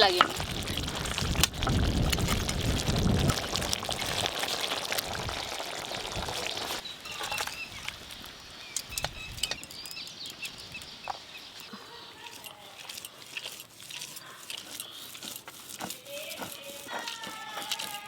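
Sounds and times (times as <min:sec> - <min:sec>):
curry sizzling and bubbling: 0:00.0 - 0:18.0
birds chirping: 0:05.4 - 0:15.5
sharp clicks: 0:08.7 - 0:11.2.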